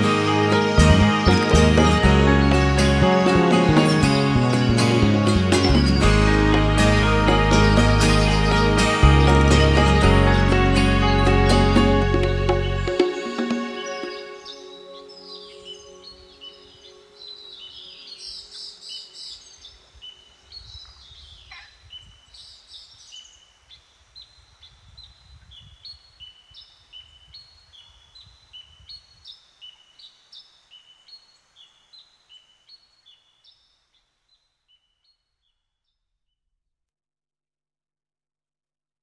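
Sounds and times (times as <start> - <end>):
bird two-note phrase: 0.0 - 18.4
background music: 0.0 - 19.3
wild birds singing: 0.0 - 36.0.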